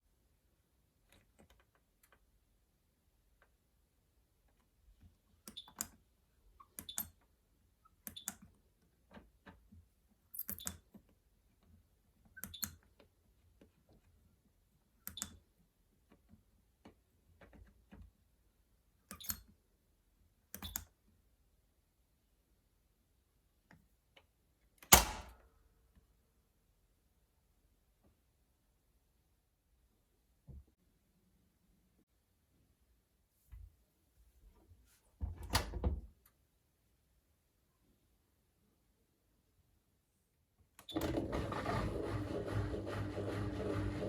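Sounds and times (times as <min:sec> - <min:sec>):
washing machine control clicks: 0:24.9 - 0:25.4.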